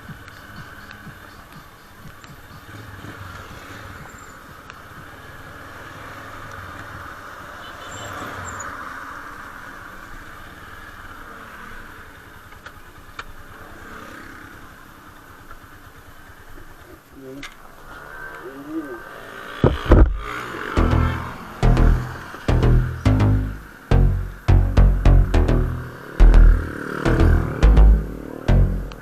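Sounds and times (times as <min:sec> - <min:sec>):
motorcycle engine running: 0:19.7 - 0:29.0.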